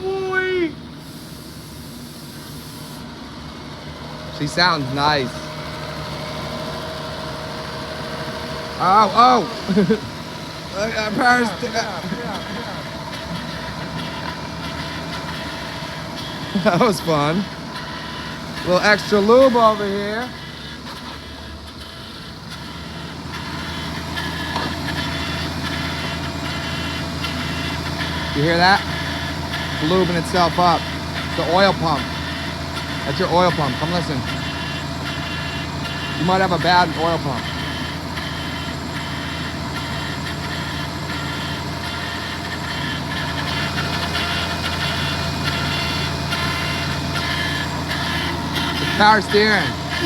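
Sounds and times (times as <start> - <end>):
person talking: 0.0 - 0.8, 4.4 - 5.5, 8.8 - 10.0, 10.7 - 12.9, 33.0 - 34.3, 36.2 - 37.5, 48.8 - 50.0
car engine idling: 0.0 - 50.0
faint engine ticking: 0.0 - 50.0.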